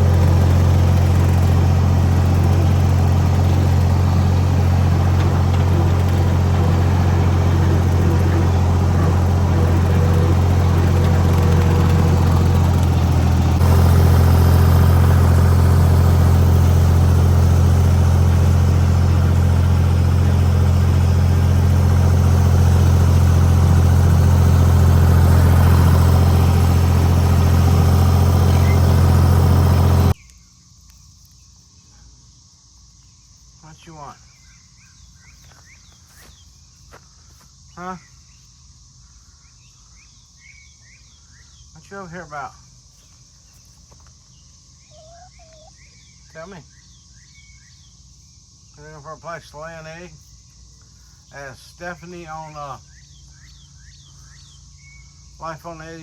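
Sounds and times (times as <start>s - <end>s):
tractor engine running: 0.0s - 30.2s.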